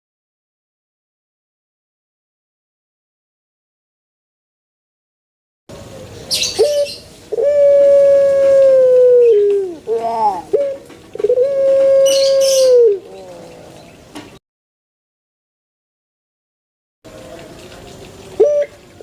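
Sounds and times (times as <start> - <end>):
dove cooing: 6.3 - 13.9, 18.4 - 18.9.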